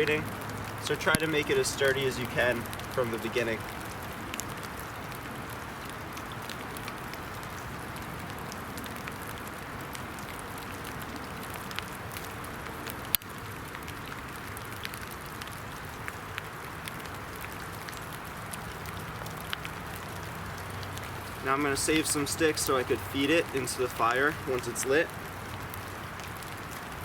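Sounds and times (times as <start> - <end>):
dripping ticks: 0.0 - 27.0
rain falling: 0.0 - 27.0.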